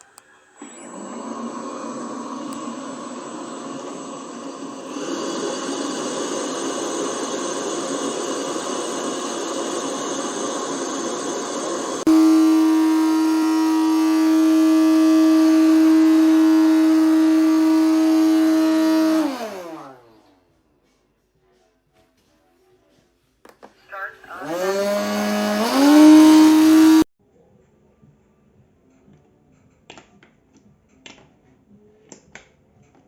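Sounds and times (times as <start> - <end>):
robot vacuum whirring: 0.0 - 20.3, 24.3 - 27.1.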